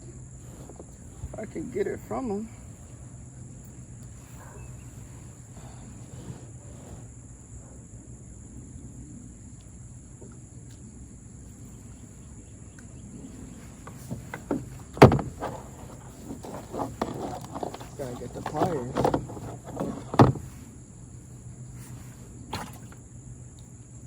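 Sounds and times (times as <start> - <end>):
clicks and rustles in kayak: 0.2 - 7.2, 12.7 - 23.7
sharp knocks on plastic: 14.1 - 15.6, 18.6 - 20.4.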